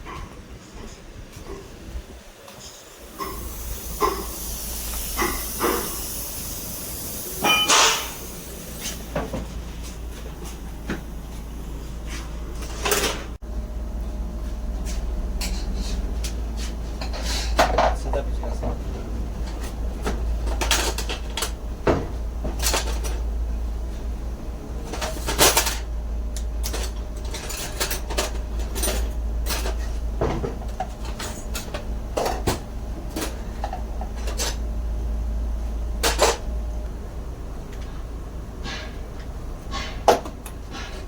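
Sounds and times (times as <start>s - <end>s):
steady low hum: 0.0s - 41.0s
metal tools clinking: 7.4s - 8.2s.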